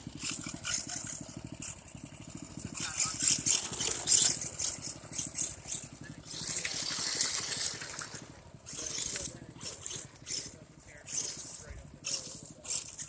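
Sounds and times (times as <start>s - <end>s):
dirt bike engine idling: 0.0s - 13.0s.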